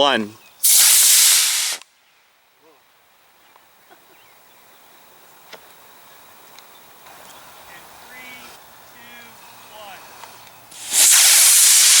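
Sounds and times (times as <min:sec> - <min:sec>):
rocket motor hiss: 0:00.6 - 0:01.9, 0:10.7 - 0:12.0.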